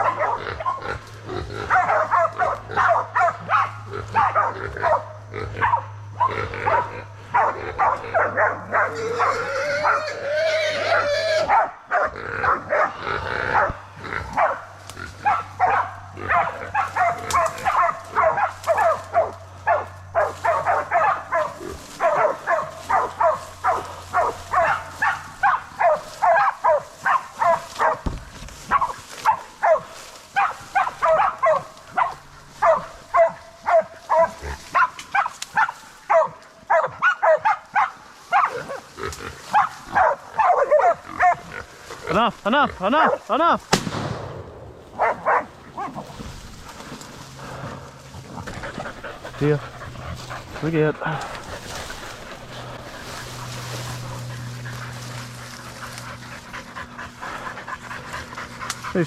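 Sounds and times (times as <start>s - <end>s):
dogs barking rapidly: 0.0s - 43.4s, 44.9s - 59.0s
rising squealing cry: 8.8s - 11.5s.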